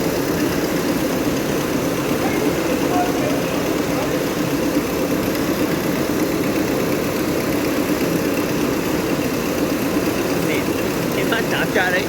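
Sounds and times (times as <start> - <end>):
heavy machinery droning: 0.0 - 12.0.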